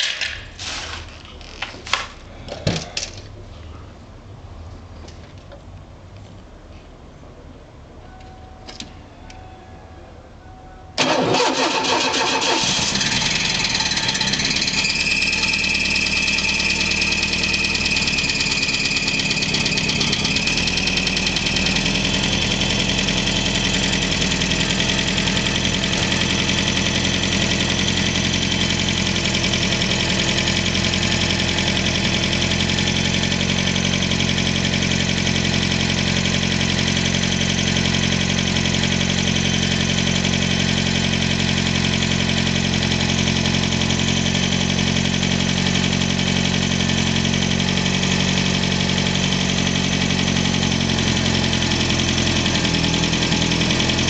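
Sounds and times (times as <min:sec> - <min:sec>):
car engine idling: 0:11.0 - 0:54.0.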